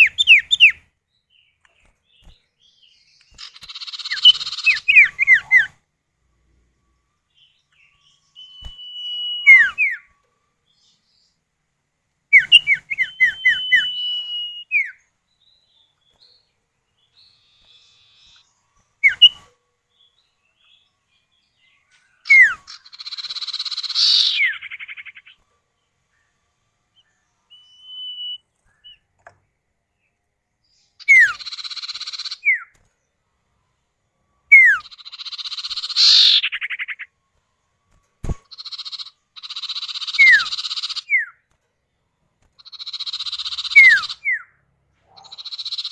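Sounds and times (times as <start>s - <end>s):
bird harsh buzzy rattling calls: 3.2s - 5.8s, 22.2s - 25.4s, 31.0s - 32.7s, 34.6s - 37.0s, 38.2s - 41.2s, 42.6s - 44.3s, 45.2s - 45.9s
bird whistled calls: 3.4s - 5.7s, 8.2s - 10.1s, 12.3s - 15.0s, 19.0s - 19.4s, 22.2s - 25.4s, 27.5s - 29.0s, 31.0s - 32.7s, 34.5s - 37.1s, 38.5s - 41.4s, 42.6s - 44.5s.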